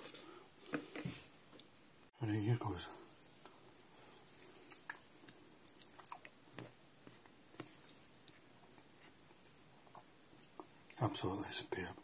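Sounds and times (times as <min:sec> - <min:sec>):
person chewing food: 0:03.4 - 0:11.0.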